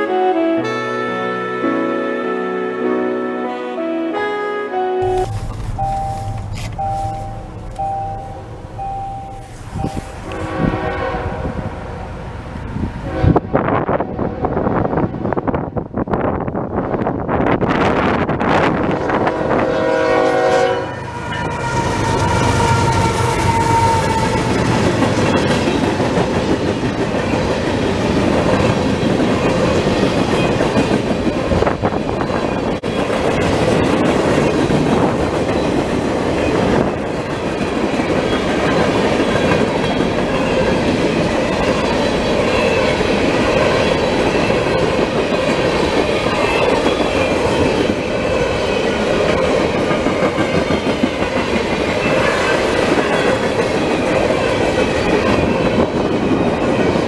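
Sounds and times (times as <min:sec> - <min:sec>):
freight train rumbling past: 0:00.0 - 0:57.0
train wheels clacking on rail joints: 0:21.6 - 0:57.0.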